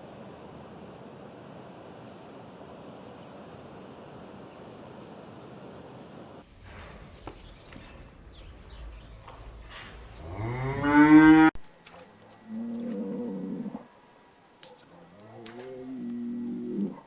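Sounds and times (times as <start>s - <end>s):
cow mooing: 9.5s - 11.5s.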